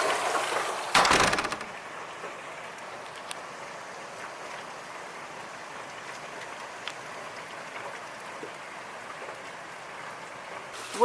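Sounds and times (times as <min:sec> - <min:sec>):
steady rain falling: 0:00.0 - 0:11.0
sharp raindrop ticks: 0:01.0 - 0:03.4, 0:06.1 - 0:07.1.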